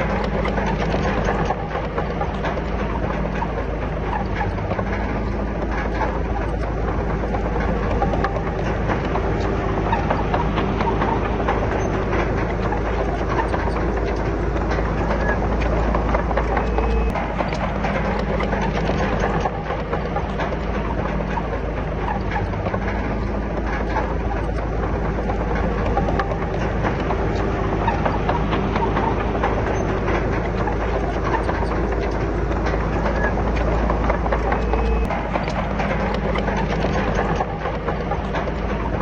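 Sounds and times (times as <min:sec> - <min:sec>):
bulldozer diesel engine running: 0:00.0 - 0:39.0
steel tracks clanking and rattling: 0:00.0 - 0:39.0.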